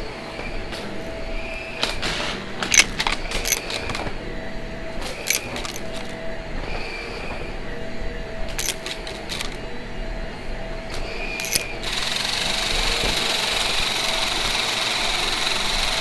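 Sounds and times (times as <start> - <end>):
vacuum cleaner humming: 0.0 - 16.0
sharp clicks and knocks: 1.8 - 4.2, 5.2 - 6.2, 8.5 - 9.6, 11.4 - 12.2.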